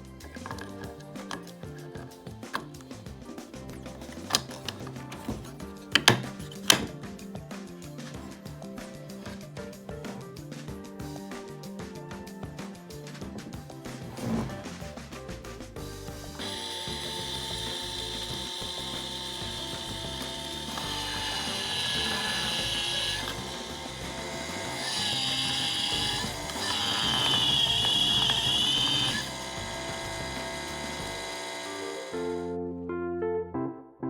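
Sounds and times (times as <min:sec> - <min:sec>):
electric gear motor whining: 0:16.2 - 0:32.5.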